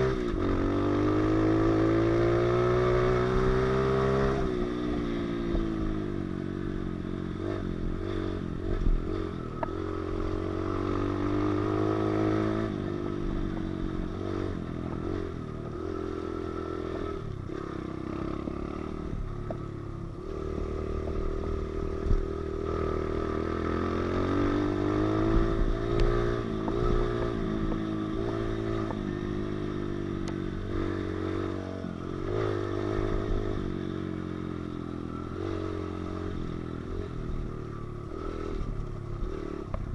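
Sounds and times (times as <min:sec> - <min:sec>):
pit bike engine revving: 0:20.2 - 0:39.9.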